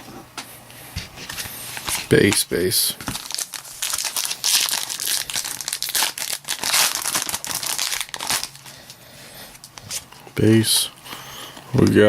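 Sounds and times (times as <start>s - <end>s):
card pack wrapper crinkling: 1.7s - 9.0s.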